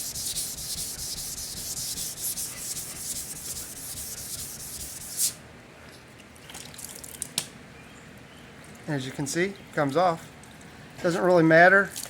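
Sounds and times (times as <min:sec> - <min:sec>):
sandpaper rubbing on car panel: 0:00.0 - 0:05.4.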